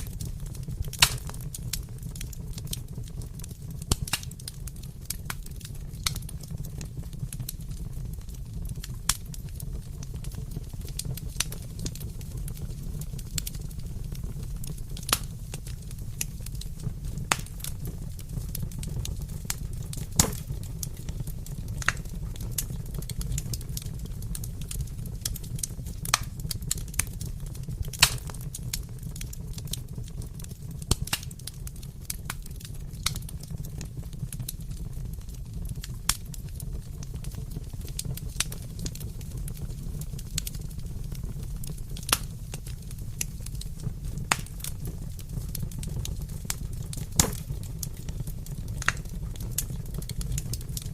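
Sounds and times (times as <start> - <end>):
sharp pops and snaps: 0.0 - 1.9, 3.8 - 5.4, 14.6 - 21.2, 21.8 - 23.7, 24.6 - 27.2, 27.8 - 34.6, 35.2 - 48.1, 48.7 - 50.9
wood fire crackling: 0.0 - 50.9.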